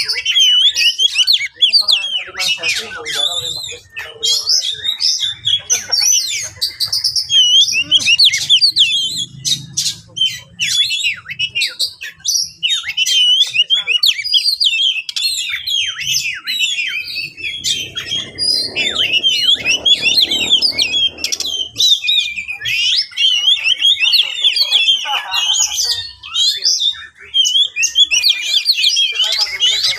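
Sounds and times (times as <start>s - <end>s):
bird singing whistles and chirps: 0.0s - 29.9s.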